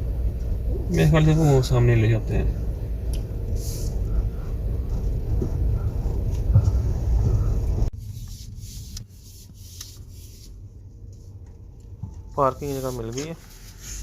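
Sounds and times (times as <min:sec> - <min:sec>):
car rumble inside cabin: 0:00.0 - 0:08.0.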